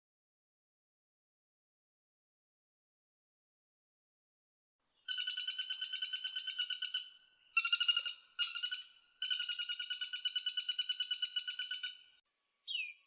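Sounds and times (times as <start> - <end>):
woodpecker rattling call: 5.1 - 13.0.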